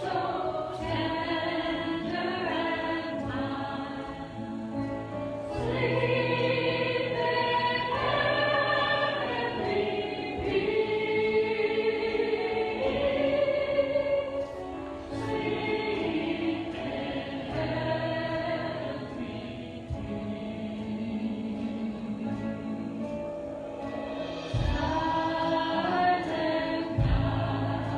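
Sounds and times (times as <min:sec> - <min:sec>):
choir singing long notes: 0:00.0 - 0:27.9
low musical accompaniment: 0:00.0 - 0:27.9.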